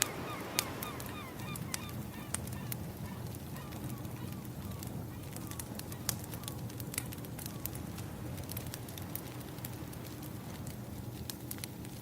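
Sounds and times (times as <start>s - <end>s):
ocean waves rushing: 0.0s - 5.9s
wood fire crackling: 1.6s - 12.0s.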